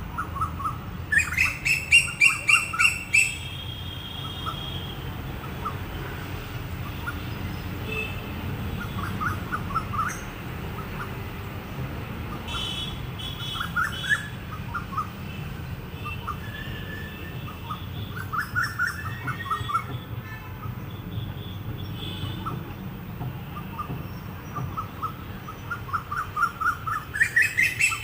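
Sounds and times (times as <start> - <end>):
bird chirping: 0.1 - 3.5, 23.6 - 28.0.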